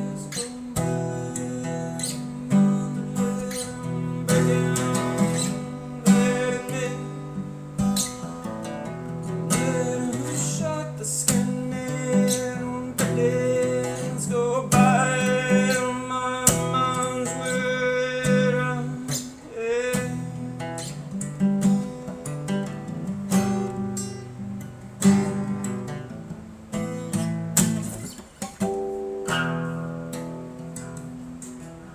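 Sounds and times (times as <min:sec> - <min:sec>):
acoustic guitar playing blues: 0:00.0 - 0:31.9.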